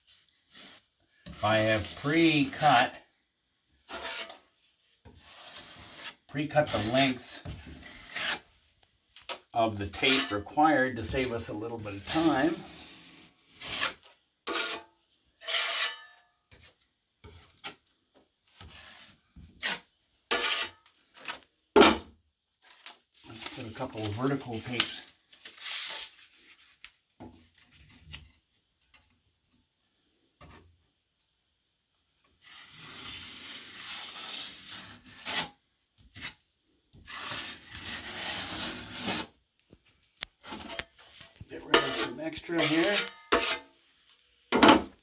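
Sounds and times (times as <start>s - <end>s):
drywall knife scraping compound: 0.0s - 3.0s, 3.8s - 8.6s, 9.7s - 17.8s, 18.6s - 20.9s, 32.3s - 39.4s, 40.4s - 43.8s.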